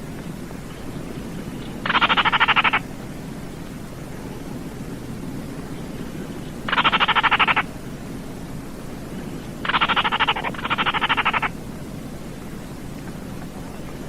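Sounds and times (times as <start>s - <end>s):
steady hiss: 0.0s - 14.0s
bird giving dry rattling call: 1.6s - 2.8s, 6.7s - 7.7s, 9.6s - 11.5s.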